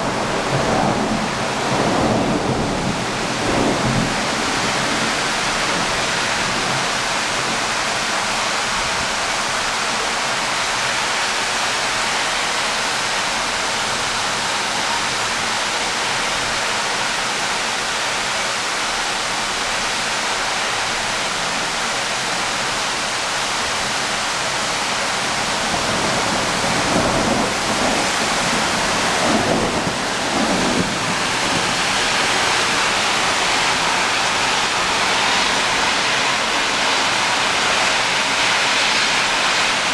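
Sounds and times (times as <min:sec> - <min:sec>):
thunder rumbles: 0:00.0 - 0:07.8, 0:25.3 - 0:38.2
heavy rain pouring: 0:00.0 - 0:39.9.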